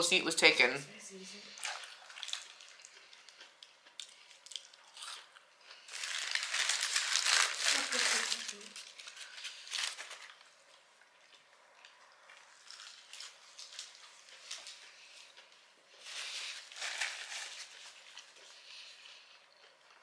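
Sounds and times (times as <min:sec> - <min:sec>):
close wet chewing: 0:01.5 - 0:06.0.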